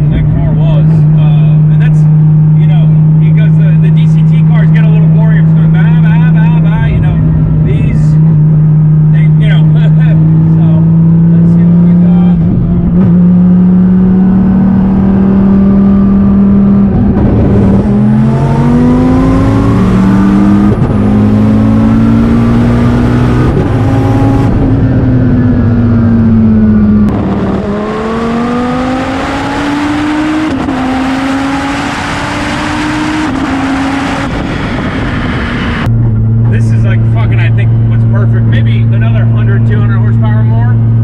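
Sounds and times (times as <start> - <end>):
car engine accelerating: 0.0 - 41.0
wind noise: 12.4 - 29.0, 32.2 - 36.7.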